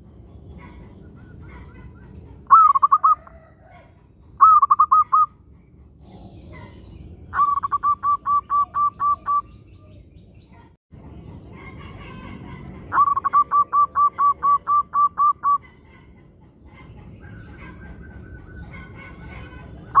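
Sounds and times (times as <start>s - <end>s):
dove cooing: 0.5s - 5.3s, 7.3s - 10.0s, 11.7s - 16.2s.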